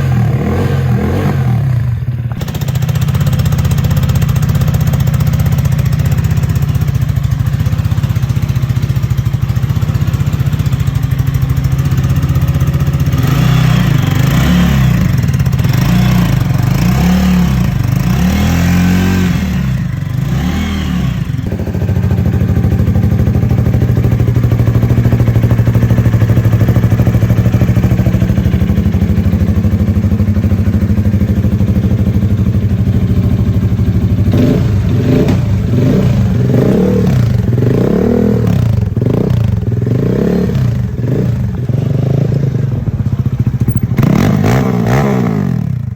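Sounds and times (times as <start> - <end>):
motorcycle engine idling and blipping: 0.0 - 45.9.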